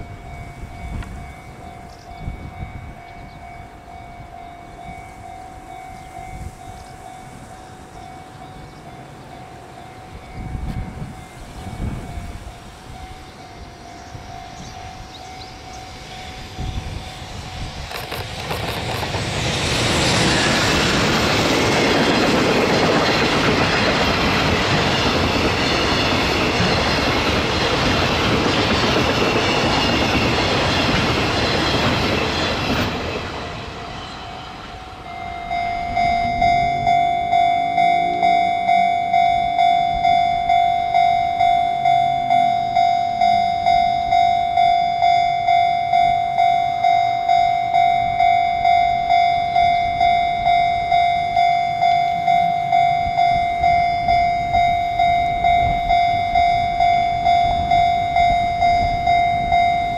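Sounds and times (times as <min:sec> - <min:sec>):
freight train passing: 0:00.0 - 0:59.9
level crossing bell ringing: 0:34.2 - 0:59.9.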